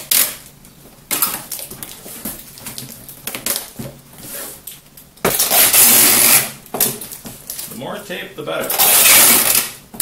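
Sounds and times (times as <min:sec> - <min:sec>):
tape pulled off tape gun: 0:00.0 - 0:00.4, 0:05.3 - 0:06.6, 0:08.7 - 0:09.8
tape clicks and rustles: 0:00.0 - 0:04.0, 0:04.6 - 0:07.8.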